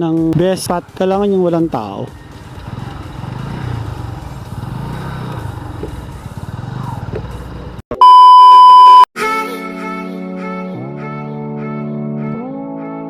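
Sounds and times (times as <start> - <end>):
music: 0.0 - 4.7, 9.2 - 13.0
road and wind noise: 0.4 - 7.8
motorcycle engine running: 1.1 - 7.8
loud steady beep tone: 8.0 - 9.1.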